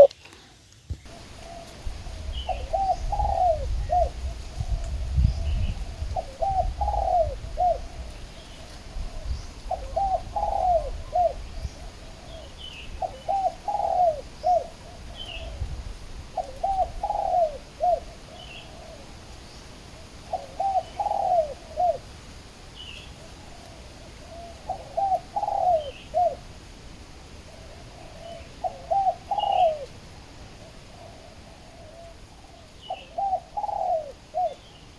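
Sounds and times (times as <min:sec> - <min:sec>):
doves cooing: 0:00.0 - 0:00.2, 0:01.1 - 0:22.2, 0:23.0 - 0:26.6, 0:27.4 - 0:34.9
small birds chirping: 0:27.6 - 0:30.0, 0:30.6 - 0:34.9.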